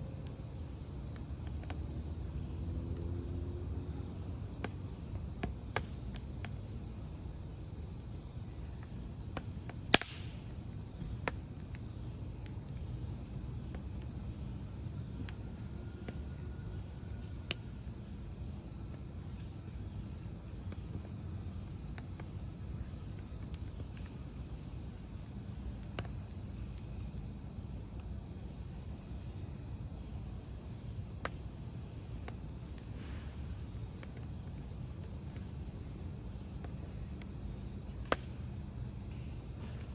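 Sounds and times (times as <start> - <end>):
campfire crackling: 0.0 - 39.9
crickets chirping: 0.0 - 39.9
burning wood popping: 4.0 - 15.4, 18.5 - 27.1, 30.8 - 39.9.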